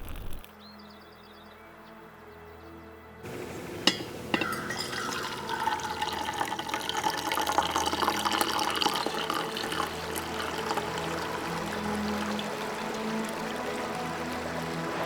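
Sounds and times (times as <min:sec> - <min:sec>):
water running and splashing: 0:03.3 - 0:15.0.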